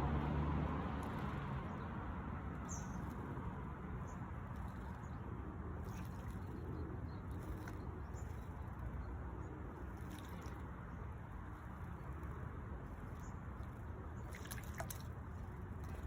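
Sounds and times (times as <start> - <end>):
low outdoor rumble: 0.0 - 16.0
small birds chirping: 1.0 - 16.0.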